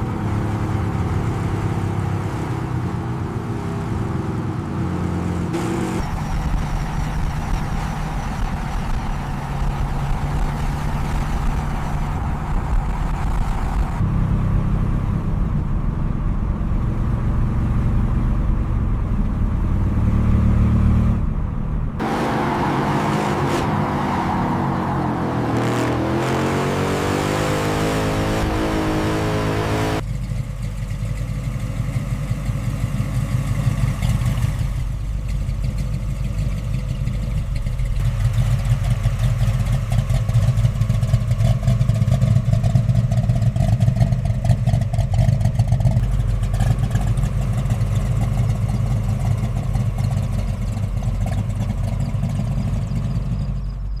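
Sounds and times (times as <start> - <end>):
car engine running: 0.0 - 54.0.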